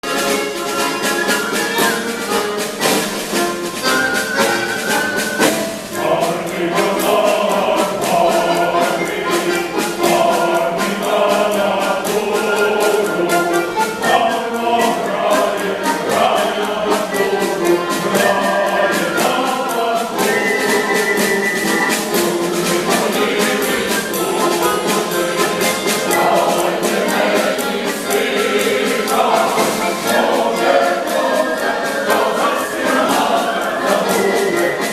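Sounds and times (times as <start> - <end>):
instrumental accompaniment with beat: 0.0 - 34.9
mixed choir singing: 0.0 - 34.9.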